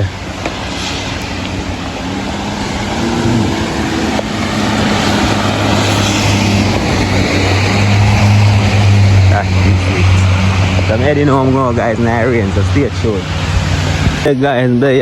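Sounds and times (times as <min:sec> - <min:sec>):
constant hiss: 0:00.0 - 0:06.3
vehicle engine humming: 0:00.0 - 0:15.0.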